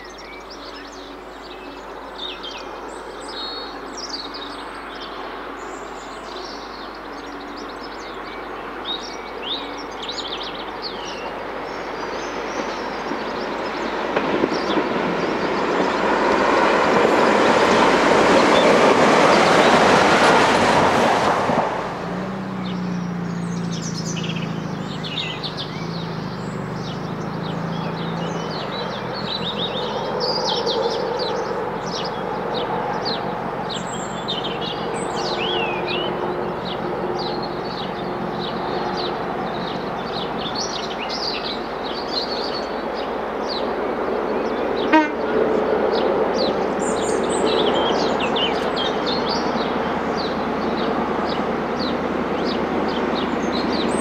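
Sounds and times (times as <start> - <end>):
train rumbling: 3.1 - 54.0
train wheels on rails: 10.4 - 54.0
diesel engine: 15.1 - 42.0
birds chirping and singing: 22.6 - 42.8.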